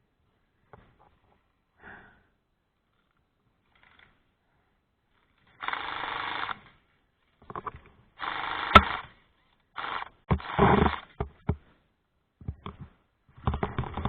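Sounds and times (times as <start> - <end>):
airsoft gun bursts: 5.6 - 6.7, 8.2 - 9.2, 9.8 - 11.2
airsoft single shots: 8.6 - 9.0
sharp crack: 8.6 - 9.1.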